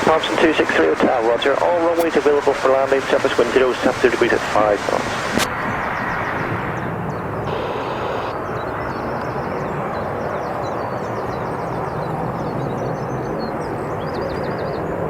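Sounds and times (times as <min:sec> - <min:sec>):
aircraft engines rumbling: 0:00.0 - 0:15.0.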